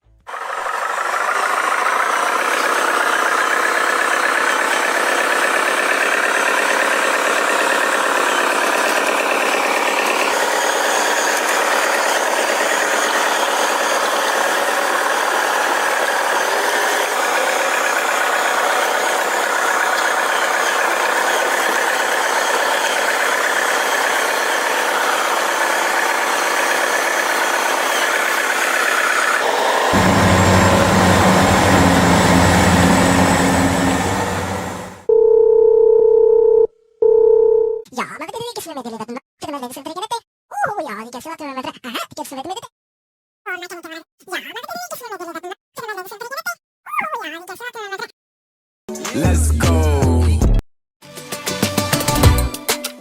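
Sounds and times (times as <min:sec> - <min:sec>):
toy vehicle engine idling: 0:00.2 - 0:35.1
loud deep hum: 0:29.4 - 0:35.1.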